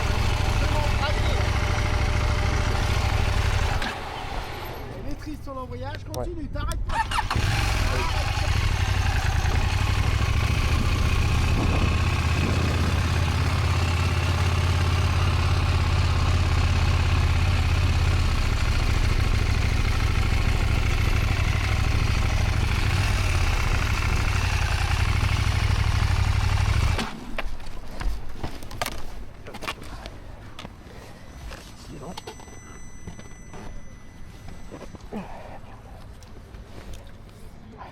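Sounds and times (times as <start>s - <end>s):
motorcycle engine running: 0.0s - 4.9s, 6.9s - 27.2s.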